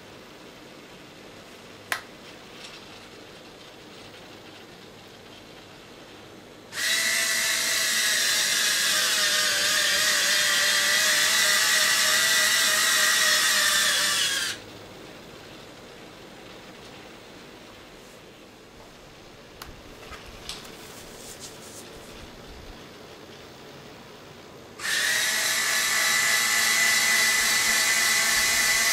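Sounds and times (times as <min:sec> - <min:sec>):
small electric motor whirring: 0:06.7 - 0:14.6, 0:24.8 - 0:28.9.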